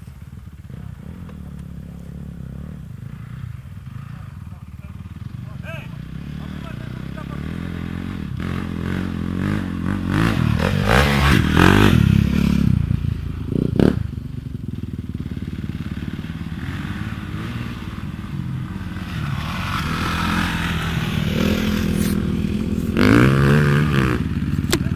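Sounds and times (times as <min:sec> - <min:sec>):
motorcycle engine revving: 0:00.0 - 0:24.9.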